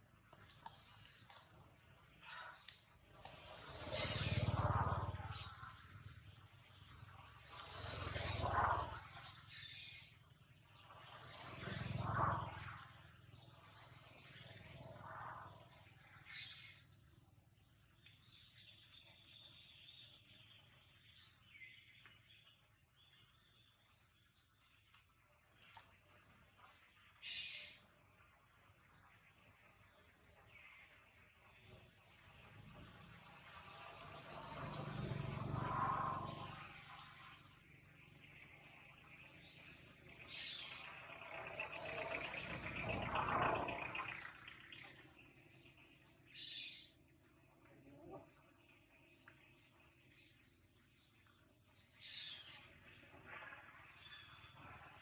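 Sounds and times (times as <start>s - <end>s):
birds chirping: 0.0s - 55.0s
swells of noise: 32.3s - 39.3s.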